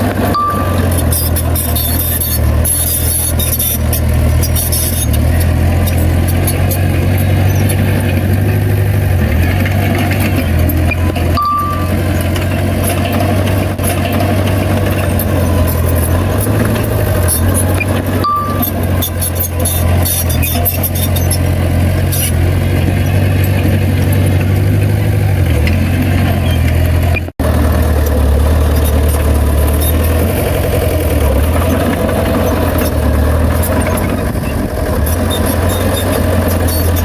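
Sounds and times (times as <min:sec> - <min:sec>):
metallic clanks: 0:00.0 - 0:25.0
diesel engine running: 0:00.0 - 0:37.0
short high beep: 0:00.2 - 0:03.8, 0:11.0 - 0:12.1, 0:17.6 - 0:21.4.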